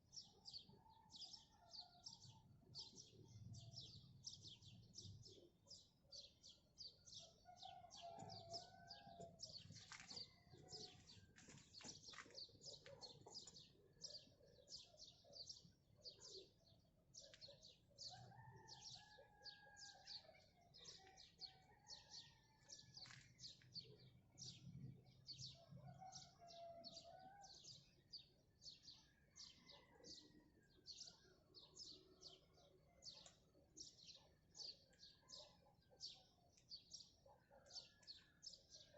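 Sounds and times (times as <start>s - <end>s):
small birds chirping: 1.6s - 21.4s.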